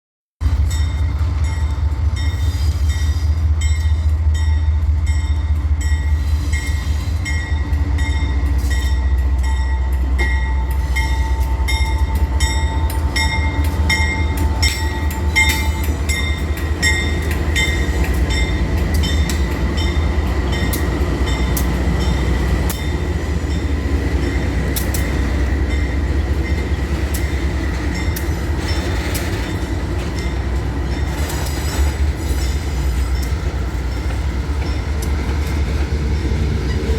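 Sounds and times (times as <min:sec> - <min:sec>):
freight train rumble: 0:00.4 - 0:36.9
wheels clicking over rails: 0:26.6 - 0:32.1.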